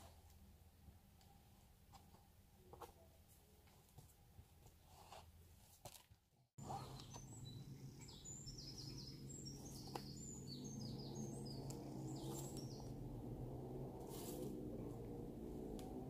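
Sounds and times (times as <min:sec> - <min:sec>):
birds chirping: 0:06.6 - 0:16.0
steady low hum: 0:06.6 - 0:16.0.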